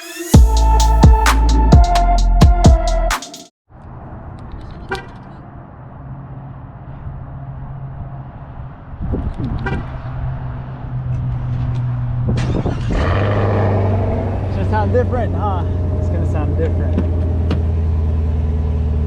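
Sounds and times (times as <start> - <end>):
car engine idling: 14.2 - 19.0.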